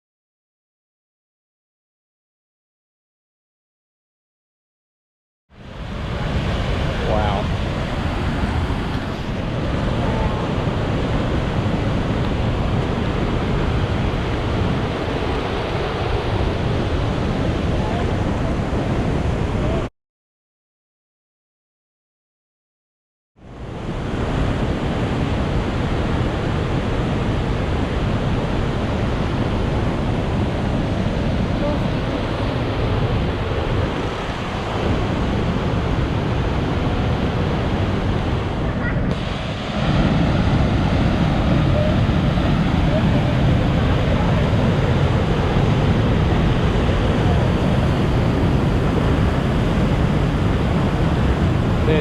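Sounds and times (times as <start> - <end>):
waterfall rushing: 5.8 - 18.0, 30.4 - 52.0.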